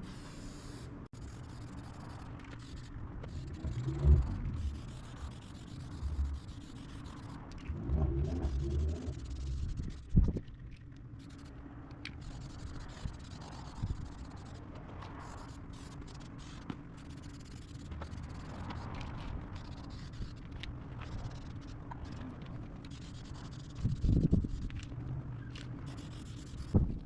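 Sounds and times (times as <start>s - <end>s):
faint scraping and rubbing: 0.0s - 27.0s
steady low hum: 0.0s - 27.0s.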